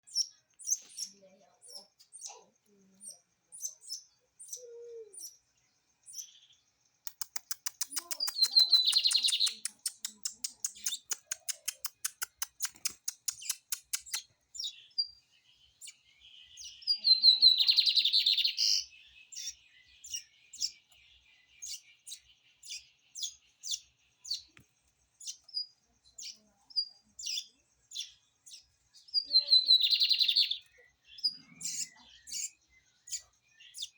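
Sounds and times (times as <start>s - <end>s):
bird dry clicking notes: 7.1s - 14.2s
bird short chirps: 7.1s - 15.2s.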